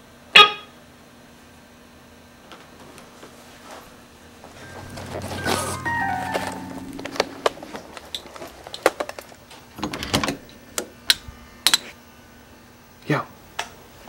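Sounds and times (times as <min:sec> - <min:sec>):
held music note: 0:04.6 - 0:08.6.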